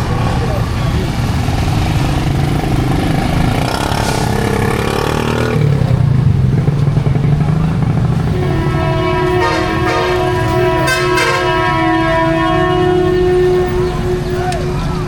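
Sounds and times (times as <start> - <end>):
street traffic noise: 0.0 - 15.0
vehicle engine revving: 0.0 - 15.0.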